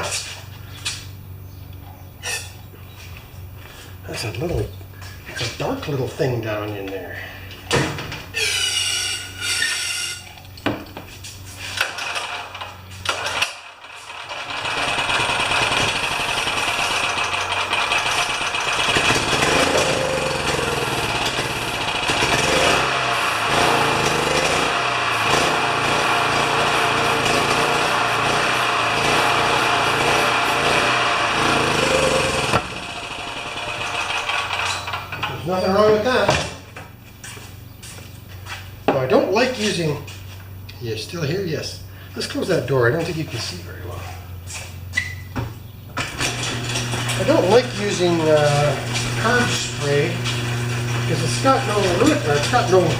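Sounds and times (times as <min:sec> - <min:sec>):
loud steady machine noise: 0:13.0 - 0:35.0, 0:46.1 - 0:52.9.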